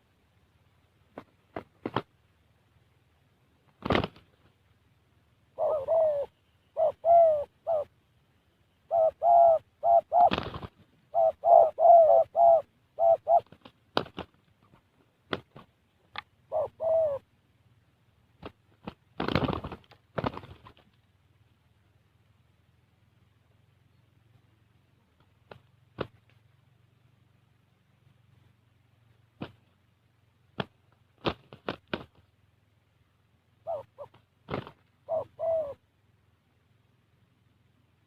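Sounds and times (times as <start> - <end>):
dove cooing: 5.5 - 8.0, 8.8 - 13.6, 16.4 - 17.3, 33.6 - 35.9.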